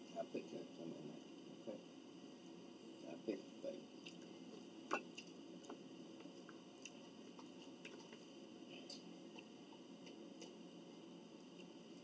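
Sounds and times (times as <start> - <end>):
low room hum: 0.0 - 12.0
faint chewing of food: 4.0 - 10.7.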